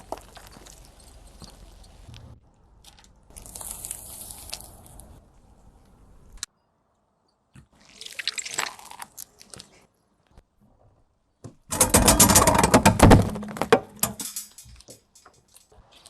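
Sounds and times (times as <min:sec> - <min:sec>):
tyre crushing brittle objects: 0:00.0 - 0:02.1, 0:02.8 - 0:05.2.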